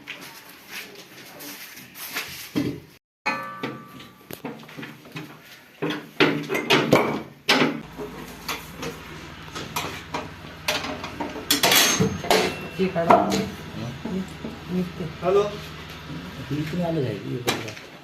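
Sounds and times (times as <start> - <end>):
metallic clanks of tools: 3.3 - 5.0, 5.8 - 14.4
low steady hum: 7.8 - 17.4.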